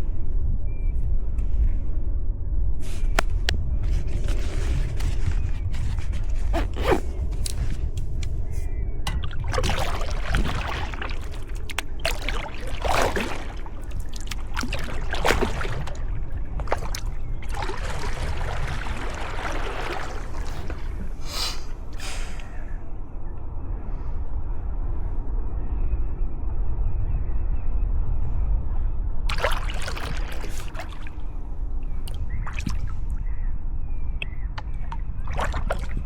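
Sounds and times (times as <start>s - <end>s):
wind rumble on microphone: 0.0s - 36.0s
paddle splashing in water: 9.1s - 21.3s, 29.3s - 31.3s, 32.1s - 33.1s, 34.6s - 36.0s.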